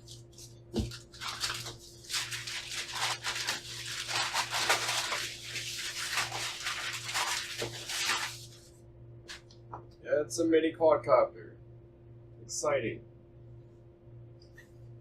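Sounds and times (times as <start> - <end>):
faint steady hum: 0.0 - 15.0
packaging crinkling and tearing: 0.8 - 8.6.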